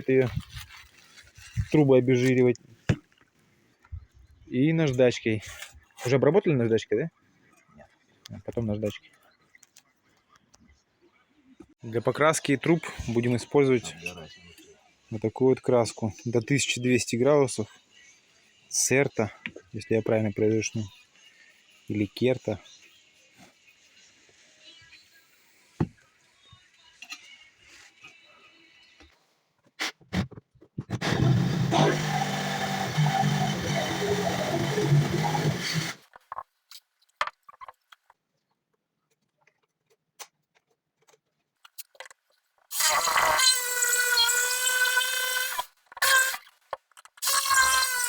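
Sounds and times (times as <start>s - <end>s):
oscillating multi-tool sawing: 31.0s - 36.0s, 42.7s - 46.4s, 47.2s - 48.0s.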